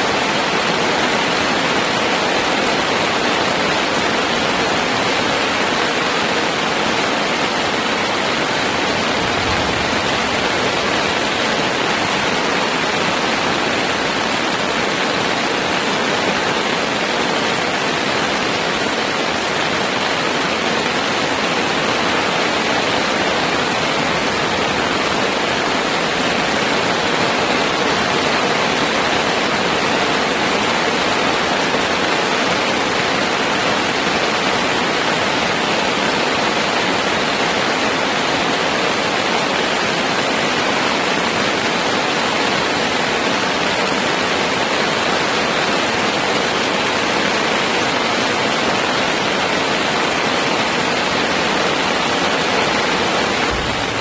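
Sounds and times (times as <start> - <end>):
heavy rain on a tarp: 0.0 - 54.0.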